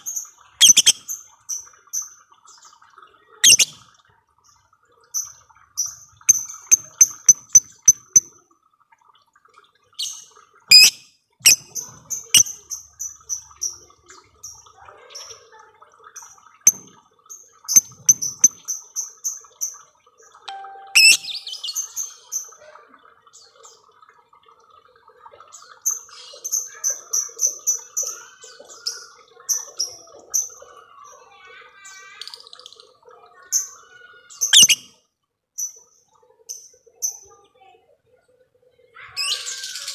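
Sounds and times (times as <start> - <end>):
lovebird chirping trill: 20.5 - 22.0, 34.6 - 34.8.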